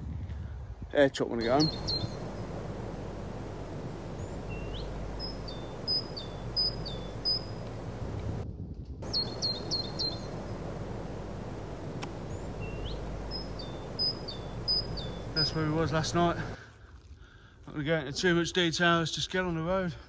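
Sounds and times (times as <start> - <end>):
wind rumble on microphone: 0.0 - 16.6
songbird chirping: 1.4 - 8.4, 9.0 - 16.6.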